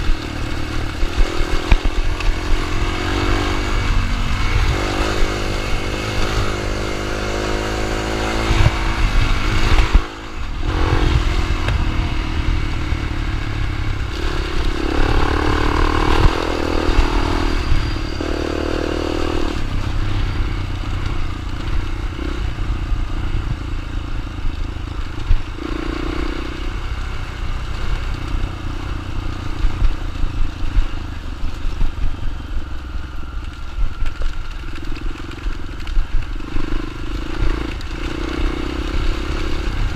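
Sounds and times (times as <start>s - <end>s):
dirt bike engine revving: 0.0s - 23.7s, 36.3s - 39.9s.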